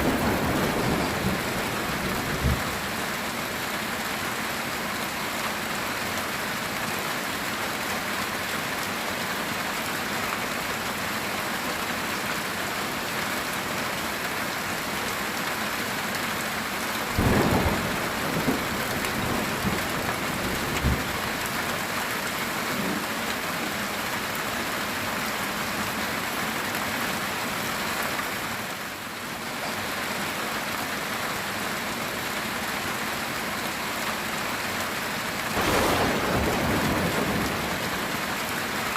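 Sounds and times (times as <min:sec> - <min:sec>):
thunderclap rumbling: 0:00.0 - 0:02.9, 0:17.1 - 0:21.8, 0:35.6 - 0:38.6
heavy rain on a tin roof: 0:00.0 - 0:38.9.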